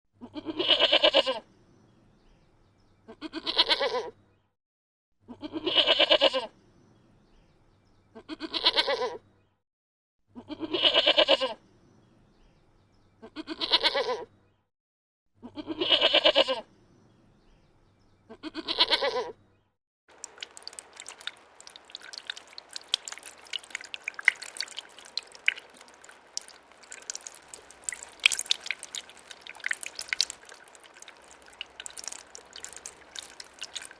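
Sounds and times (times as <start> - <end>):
goat bleating: 0.2 - 1.4, 3.1 - 4.1, 5.3 - 6.5, 8.2 - 9.2, 10.4 - 11.6, 13.3 - 14.3, 15.4 - 16.6, 18.3 - 19.3
sharp clicks and drips: 20.1 - 33.9.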